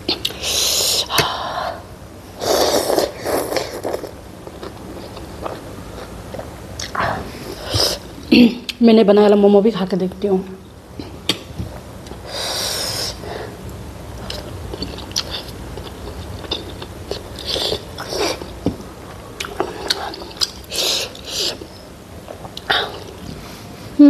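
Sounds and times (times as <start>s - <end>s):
person chewing and smacking: 2.9s - 7.0s, 14.2s - 21.7s.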